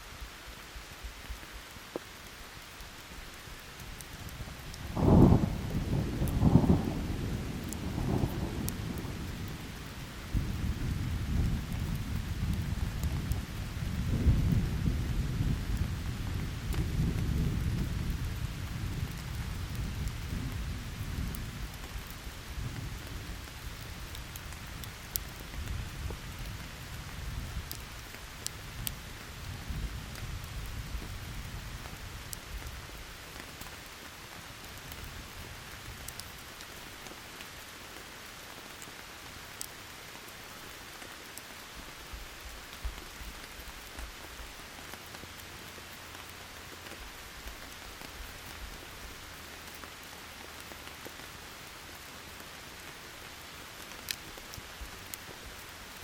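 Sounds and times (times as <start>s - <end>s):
steady rain: 0.0s - 56.0s
campfire crackling: 0.1s - 56.0s
thunder rumbling: 4.4s - 24.6s.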